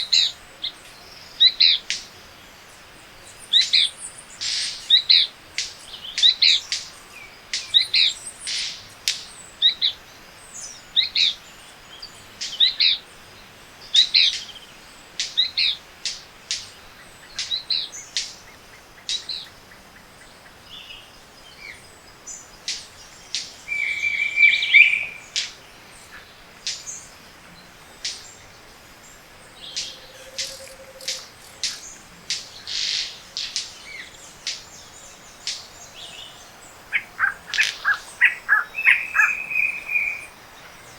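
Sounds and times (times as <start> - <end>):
birds singing and calling: 0.0 - 40.9
sharp clicks: 29.8 - 34.6.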